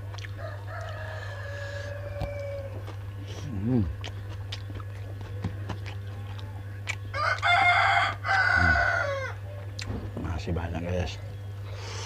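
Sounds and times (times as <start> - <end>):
rooster crowing: 0.4 - 3.0, 7.1 - 9.5.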